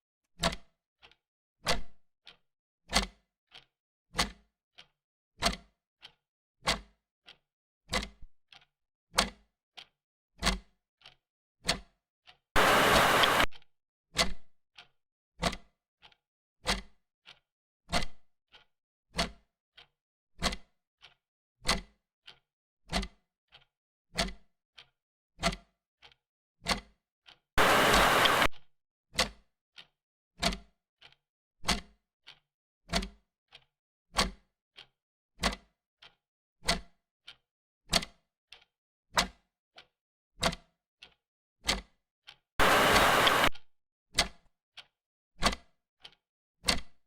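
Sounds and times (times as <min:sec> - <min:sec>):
loud burst of hiss: 0:12.6 - 0:13.5, 0:27.6 - 0:28.5, 0:42.6 - 0:43.5.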